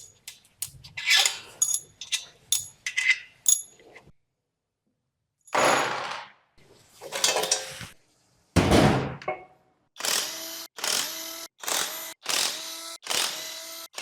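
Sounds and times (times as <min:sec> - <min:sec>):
metal parts knocking and scraping: 0:00.0 - 0:03.9.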